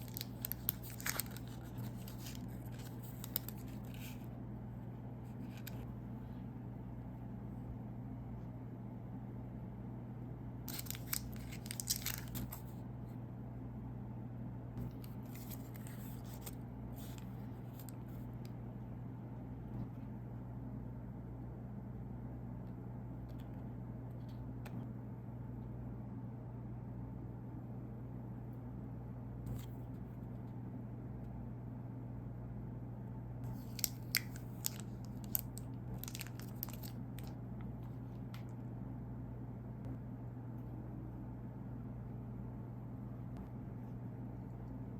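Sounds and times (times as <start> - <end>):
plastic wrapper crinkling: 0.0 - 4.2, 10.7 - 12.7, 33.5 - 37.4
steady low hum: 0.0 - 44.9.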